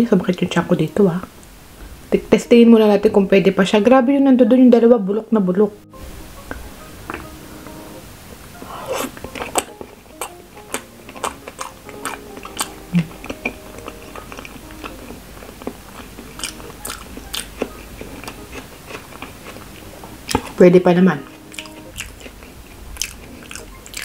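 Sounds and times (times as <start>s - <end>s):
person chewing with wet smacks: 8.9s - 20.6s, 21.2s - 24.0s.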